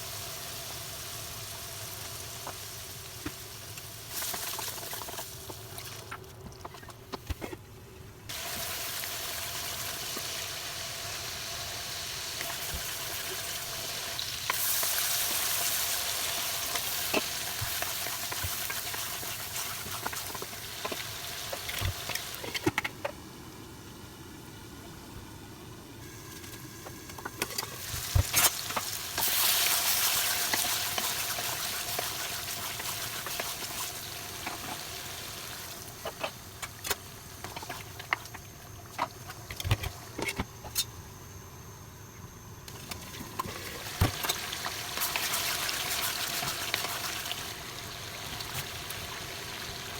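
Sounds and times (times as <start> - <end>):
food sizzling in a hot pan: 0.0 - 5.3, 8.3 - 22.5, 27.4 - 36.1, 42.7 - 49.9.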